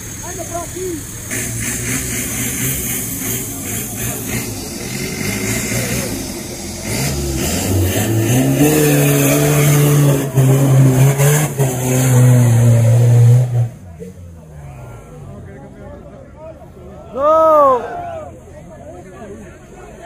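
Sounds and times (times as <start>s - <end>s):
vehicle engine revving: 0.0s - 17.0s.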